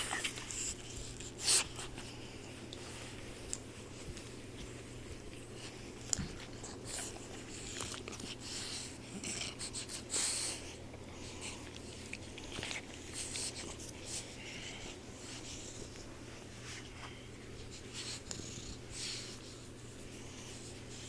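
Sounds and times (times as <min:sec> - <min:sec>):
puppy snoring: 0:08.9 - 0:11.8.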